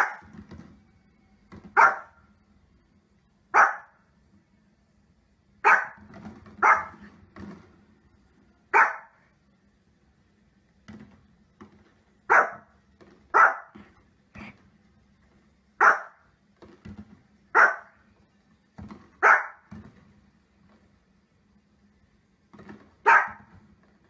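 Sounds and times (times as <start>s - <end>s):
small dog barking: 0.0s - 0.3s, 1.7s - 2.2s, 3.5s - 4.0s, 5.6s - 6.0s, 6.6s - 7.0s, 8.7s - 9.2s, 12.3s - 12.7s, 13.3s - 13.8s, 15.8s - 16.2s, 17.5s - 18.0s, 19.2s - 19.7s, 23.0s - 23.6s.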